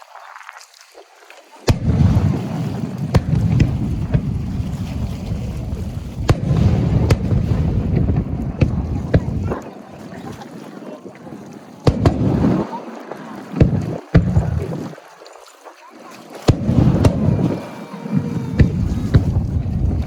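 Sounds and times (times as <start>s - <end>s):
fireworks sharp cracks: 1.6s - 4.4s, 6.2s - 9.6s, 11.8s - 14.8s, 16.4s - 17.6s
fireworks bang: 1.7s - 4.5s, 6.2s - 9.6s, 11.8s - 12.8s, 16.5s - 17.6s, 18.6s - 20.0s.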